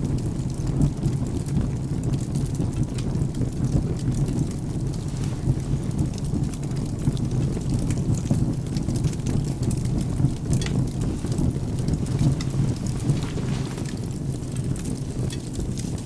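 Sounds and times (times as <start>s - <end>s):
low continuous rumble: 0.0s - 16.0s
steady rain: 0.0s - 16.0s
wood fire crackling: 0.0s - 16.0s
sharp snaps of fire: 0.1s - 16.0s.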